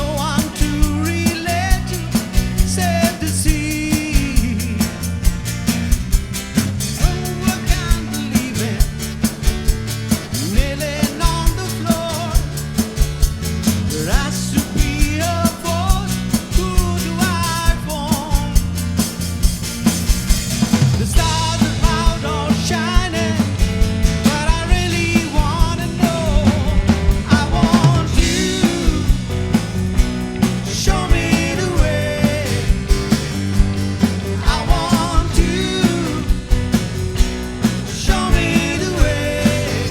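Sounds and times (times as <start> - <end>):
drum kit beat: 0.0 - 39.9
rock band playing live: 0.0 - 39.9
person singing lead: 24.5 - 29.4, 30.7 - 32.9, 34.4 - 36.4, 37.9 - 39.9.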